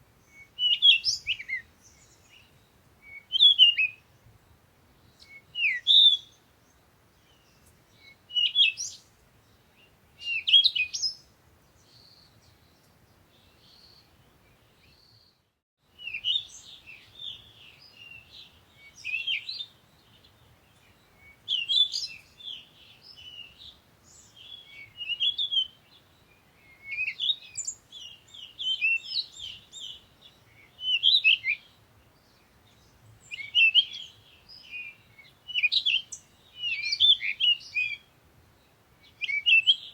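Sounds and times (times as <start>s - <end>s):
songbirds chirping and singing: 16.0s - 39.9s.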